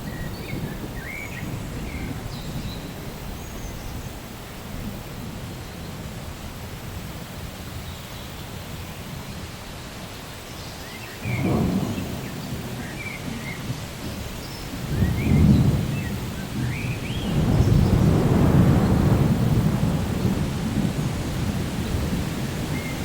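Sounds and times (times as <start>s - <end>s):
low rumble of thunder: 0.0s - 7.8s, 11.2s - 23.0s
steady rain: 0.0s - 23.0s.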